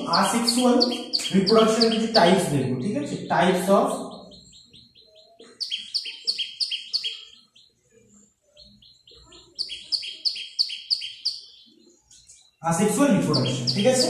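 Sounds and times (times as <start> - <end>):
high bird chips: 0.0 - 2.5, 4.1 - 7.8, 8.5 - 12.6, 13.2 - 14.0
small bird chirping: 0.0 - 14.0.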